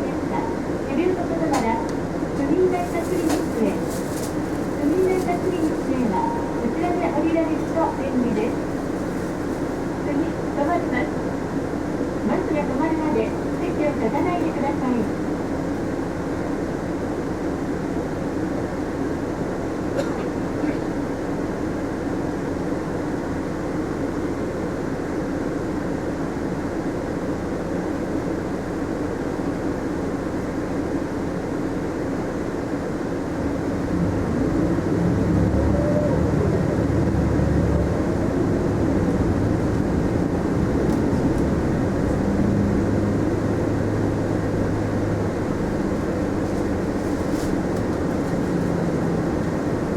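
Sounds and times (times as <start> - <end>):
bus engine and road noise: 0.0 - 49.9
engine whine: 33.4 - 49.9.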